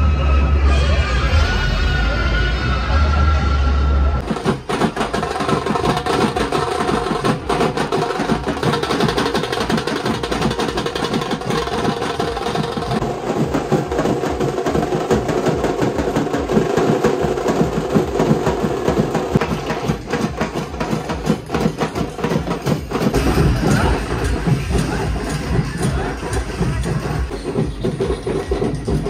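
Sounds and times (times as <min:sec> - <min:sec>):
loud music from sound system: 0:23.1 - 0:29.0.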